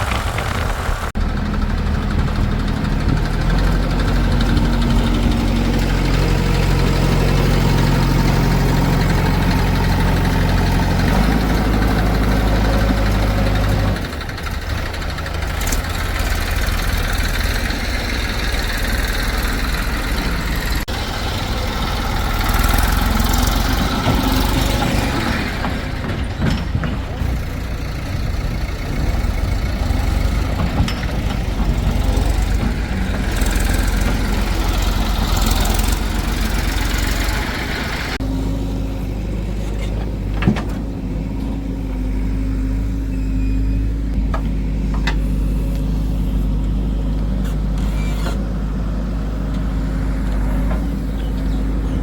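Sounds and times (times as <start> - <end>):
diesel engine running steadily: 0.0 - 52.0
rough engine sound: 0.0 - 52.0.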